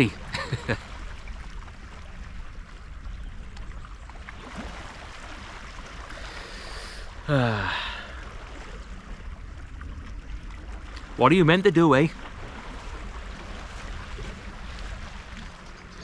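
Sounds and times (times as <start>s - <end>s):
man sighing: 7.3s - 8.2s.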